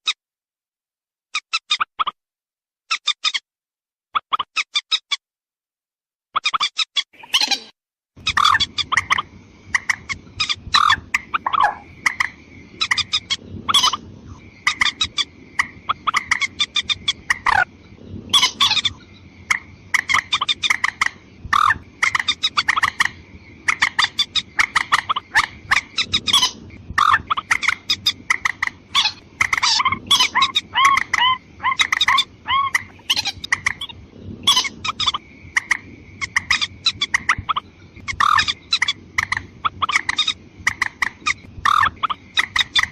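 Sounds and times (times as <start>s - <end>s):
bird calls in rapid series: 1.3s - 2.2s, 2.9s - 3.5s, 4.1s - 5.2s, 6.3s - 42.9s.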